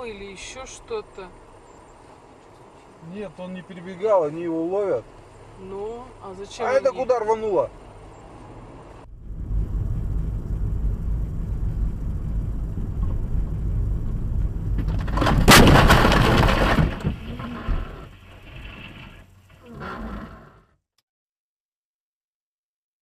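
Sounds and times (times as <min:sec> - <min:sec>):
car driving rumble: 0:00.0 - 0:20.6
loud crash with breaking: 0:14.8 - 0:19.0.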